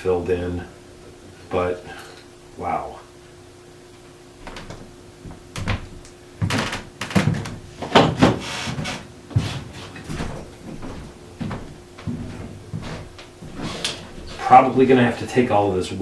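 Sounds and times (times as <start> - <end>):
wooden chair parts knocking: 4.4 - 8.5
scraping and rustling: 12.1 - 14.5.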